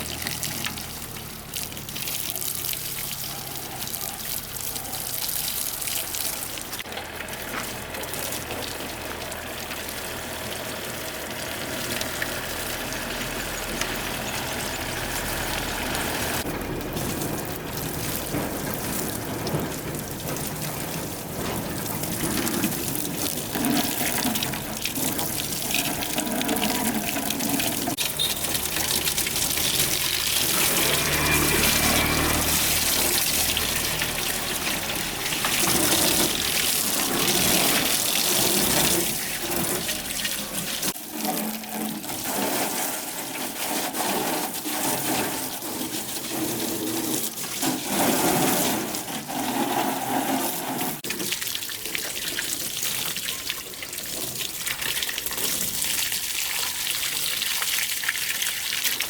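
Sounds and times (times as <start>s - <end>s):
water running: 0.0s - 59.0s.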